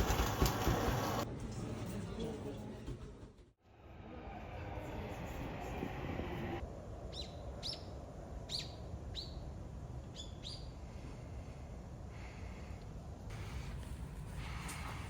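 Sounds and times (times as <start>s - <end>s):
small bird chirping: 7.1s - 9.4s, 10.1s - 10.8s.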